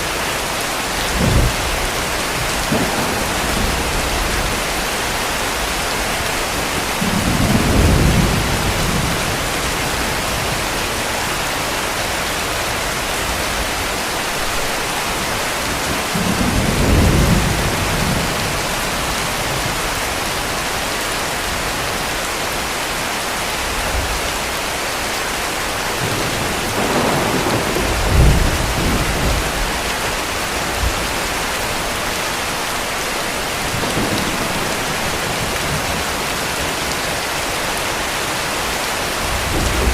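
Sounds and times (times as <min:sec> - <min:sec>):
heavy rain falling: 0:00.0 - 0:39.9
distant thunder rolling: 0:01.1 - 0:10.7, 0:26.0 - 0:31.2.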